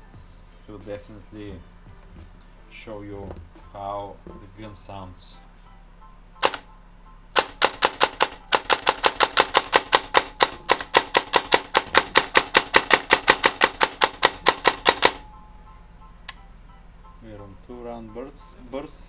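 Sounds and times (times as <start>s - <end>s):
airsoft gun firing: 6.4s - 6.7s, 7.3s - 15.3s.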